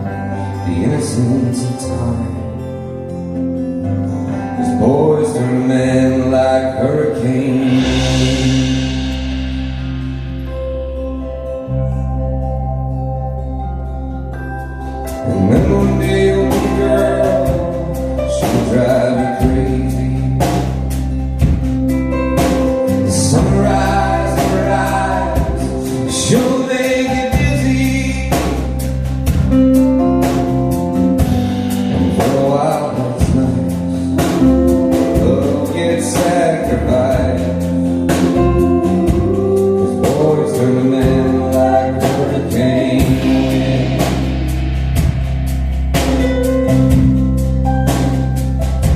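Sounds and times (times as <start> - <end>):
person singing: 0.0 - 3.1, 4.4 - 9.7, 15.0 - 29.1, 31.8 - 44.8
live band music: 0.0 - 48.9
drums and cymbals beat: 7.5 - 11.3, 15.5 - 48.9.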